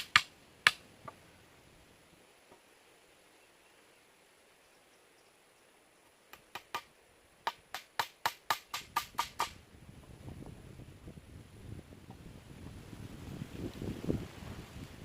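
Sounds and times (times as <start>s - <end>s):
sharp knocks on wood: 6.3s - 9.6s.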